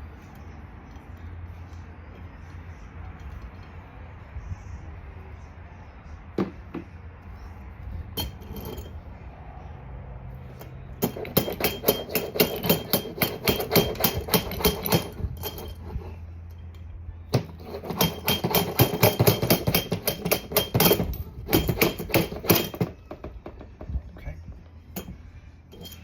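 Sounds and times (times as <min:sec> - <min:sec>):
metallic tapping with hand tool: 0:08.2 - 0:08.9, 0:10.6 - 0:23.9, 0:24.9 - 0:26.0.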